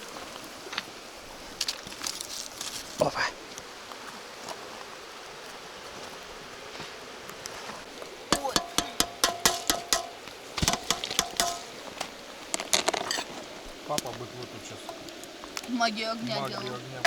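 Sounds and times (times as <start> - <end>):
metal cookware clinking: 8.4 - 11.8.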